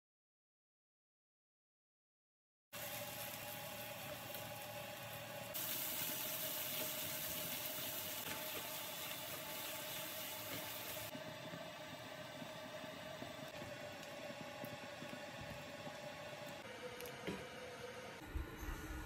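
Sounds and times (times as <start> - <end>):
food sizzling in a frying pan: 2.8 - 11.2
lentils simmering: 2.8 - 17.1.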